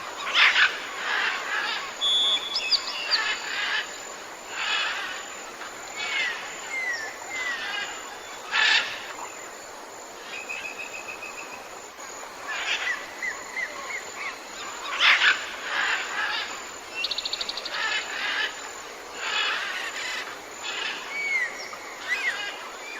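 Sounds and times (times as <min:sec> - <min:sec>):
forest birds calling: 0:00.0 - 0:09.5, 0:10.2 - 0:22.9
steady hiss: 0:00.0 - 0:22.9
bird trill: 0:02.0 - 0:03.5.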